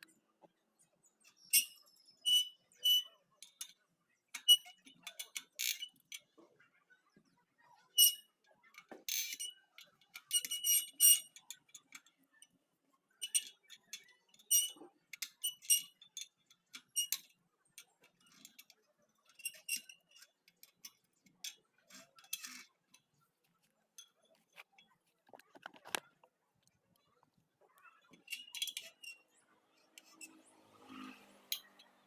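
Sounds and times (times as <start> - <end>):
metallic clinks on wire spokes: 27.8 - 32.0.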